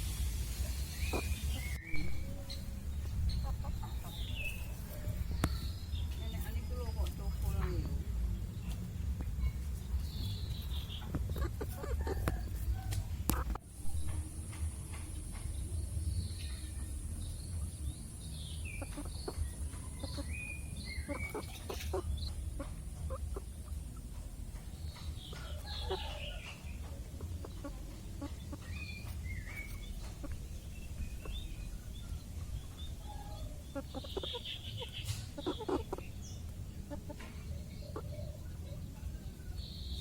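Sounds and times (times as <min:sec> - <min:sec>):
low rumble: 0:00.0 - 0:21.3
chickens clucking: 0:00.0 - 0:40.0.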